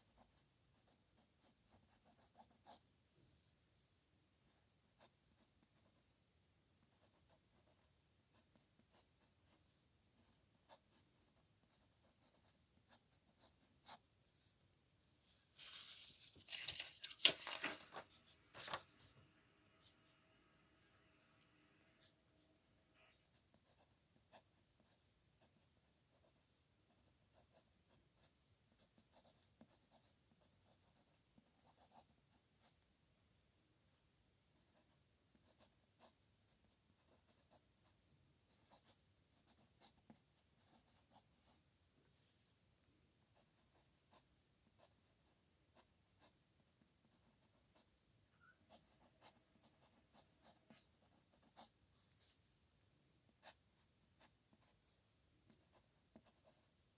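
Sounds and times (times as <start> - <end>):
pen scratching on paper: 0.0 - 3.9, 4.5 - 6.2, 6.8 - 14.7, 23.3 - 33.2, 34.6 - 42.6, 43.4 - 46.5, 47.1 - 56.9.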